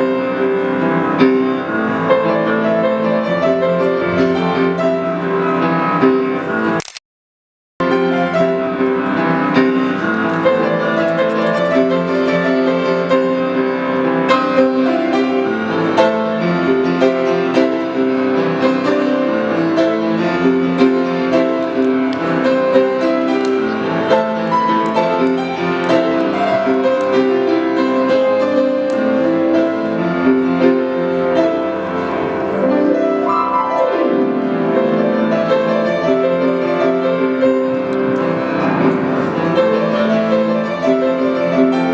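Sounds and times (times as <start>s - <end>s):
piano music: 0.0s - 6.8s, 7.8s - 41.9s.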